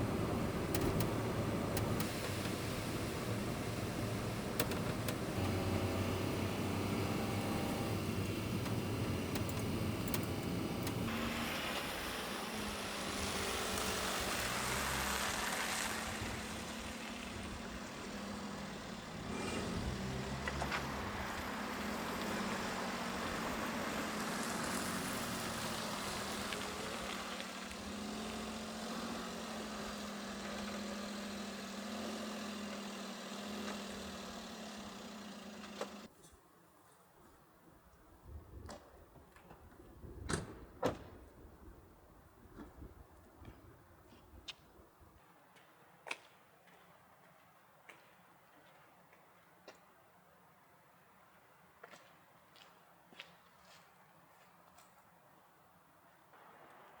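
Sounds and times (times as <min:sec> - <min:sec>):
truck engine humming: 0:00.0 - 0:36.1.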